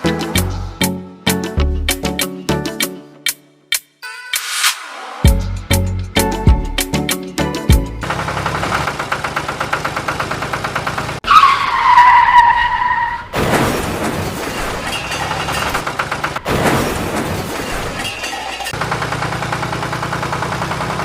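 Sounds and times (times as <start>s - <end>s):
power tool rattling and whining: 8.0s - 11.2s, 14.0s - 21.0s.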